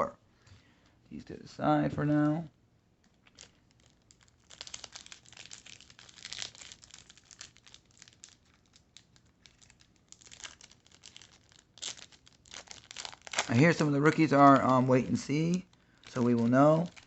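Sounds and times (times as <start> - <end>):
foil wrapper crinkling and tearing: 3.1 - 17.0.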